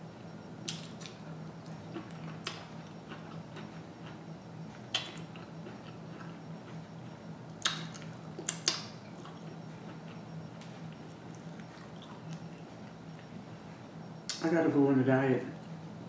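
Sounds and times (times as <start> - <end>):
steady low hum: 0.0 - 16.0
soft chewing: 0.6 - 14.4
wet lip smacks: 7.6 - 9.4.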